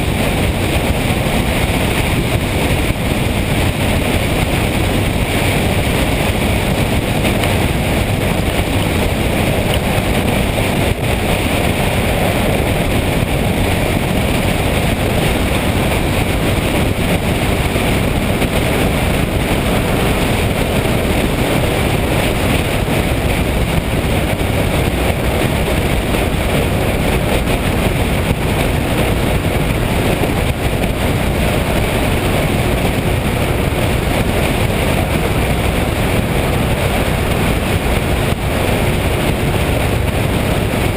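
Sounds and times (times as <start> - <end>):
motorcycle engine and road noise: 0.0 - 40.9
wind rushing on microphone: 0.0 - 40.9.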